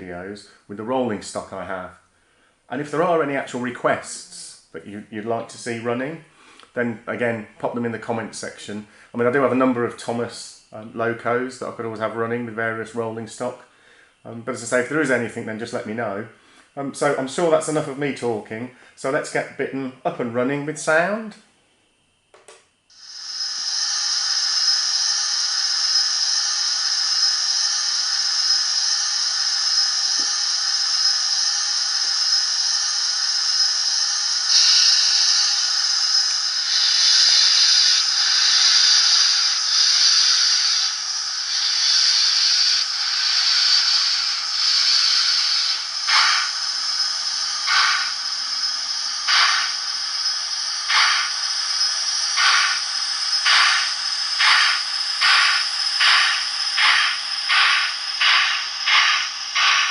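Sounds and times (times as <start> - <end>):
slow steam chuffs: 22.9 - 59.9
steam hiss from small speaker: 22.9 - 59.9.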